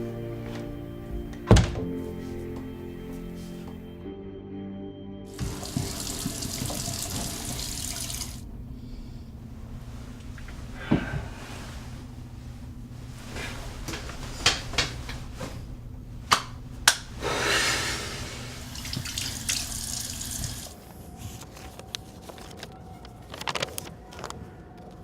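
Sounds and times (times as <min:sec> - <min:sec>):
low steady hum: 0:00.0 - 0:22.0
water running: 0:05.3 - 0:08.5, 0:18.3 - 0:20.8.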